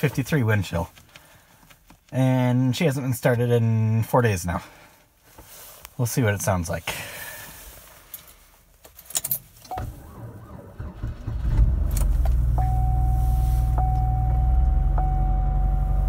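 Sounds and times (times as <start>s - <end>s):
keys rattling: 8.9s - 9.6s
steady high tone: 12.6s - 16.0s.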